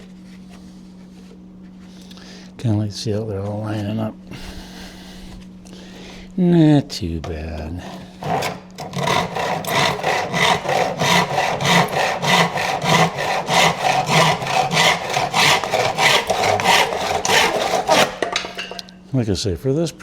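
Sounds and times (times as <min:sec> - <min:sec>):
handsaw cutting wood: 0:07.6 - 0:18.9.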